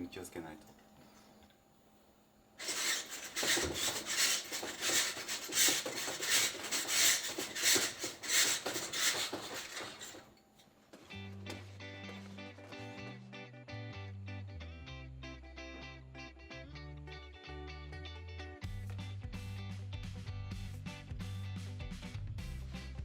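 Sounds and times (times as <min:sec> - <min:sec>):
brush scraping inside flue pipe: 0:02.6 - 0:10.3.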